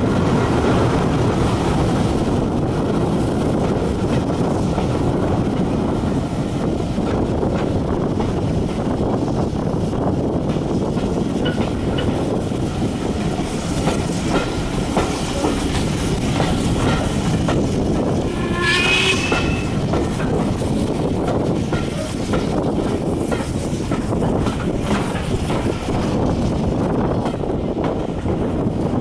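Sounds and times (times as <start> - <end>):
railway carriage rumbling: 0.0 - 29.0
wheels clicking over rail joints: 10.3 - 18.4, 19.7 - 29.0
high-pitched squeal: 18.1 - 20.0.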